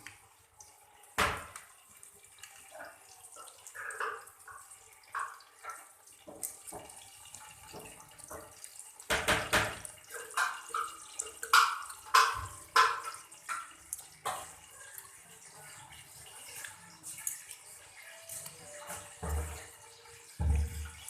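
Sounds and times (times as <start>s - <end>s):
water splashing and dripping: 0.0s - 21.0s
utensil knocks: 9.1s - 9.8s.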